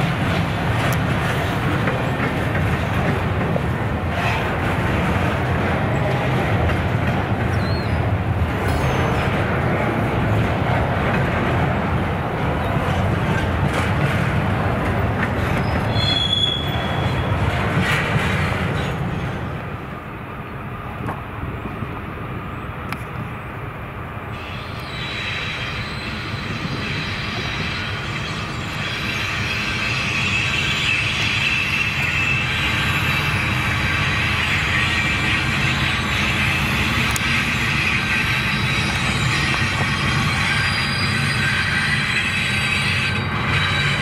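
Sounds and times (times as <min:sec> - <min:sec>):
train rumbling past on rails: 0:00.0 - 0:44.0
high squeal of wheels on rail: 0:04.1 - 0:04.7, 0:07.4 - 0:10.1, 0:14.9 - 0:19.7, 0:24.3 - 0:44.0.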